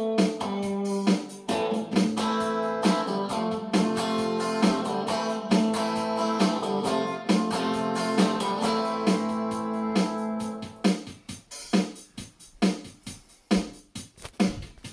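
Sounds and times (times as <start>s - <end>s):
acoustic guitar strumming: 0.2s - 10.8s.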